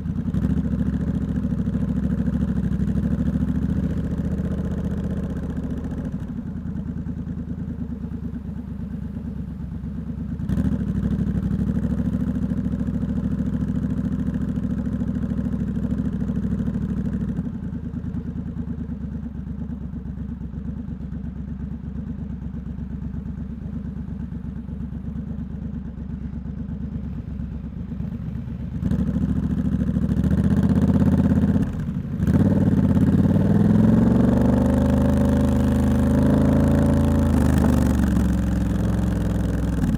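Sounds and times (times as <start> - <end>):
motorcycle engine revving: 26.9 - 39.9.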